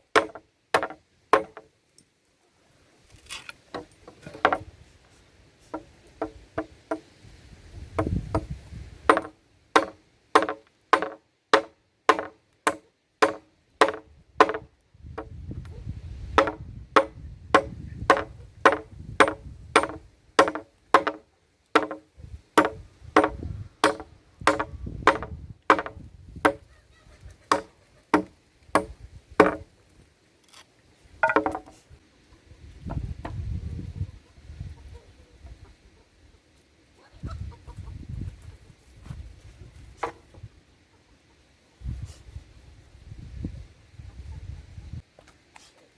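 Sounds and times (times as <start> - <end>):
blade chopping: 9.1 - 14.6, 16.4 - 21.2, 21.8 - 22.0, 22.6 - 26.6, 27.5 - 29.6.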